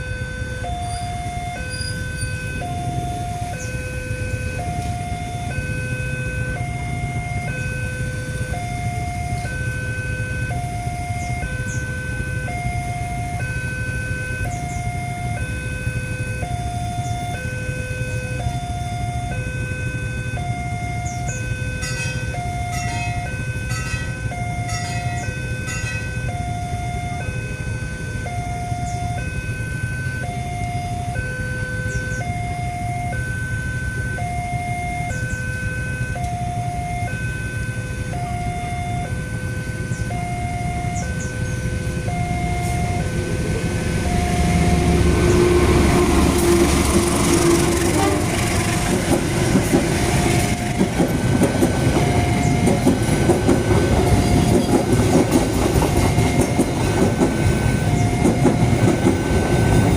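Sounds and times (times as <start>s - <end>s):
low rumble of traffic: 0.0s - 59.9s
two-tone level crossing alarm: 0.0s - 59.9s.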